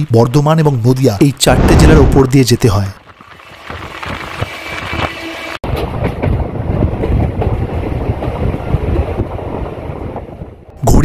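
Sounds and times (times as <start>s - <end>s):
train wheels rumbling over rails: 4.4s - 10.9s.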